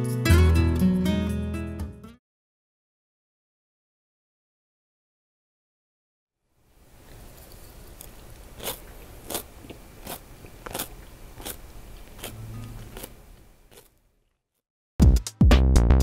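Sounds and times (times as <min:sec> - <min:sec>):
crunchy chewing: 0:07.0 - 0:14.6.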